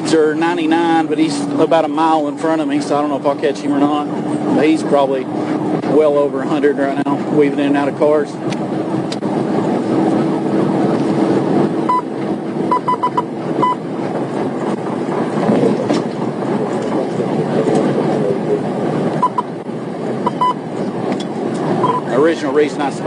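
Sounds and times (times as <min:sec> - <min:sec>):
road and wind noise in car: 0:00.0 - 0:23.0
short high beeps: 0:11.9 - 0:12.1, 0:12.7 - 0:13.8, 0:19.2 - 0:19.5, 0:20.2 - 0:20.6, 0:21.8 - 0:22.1.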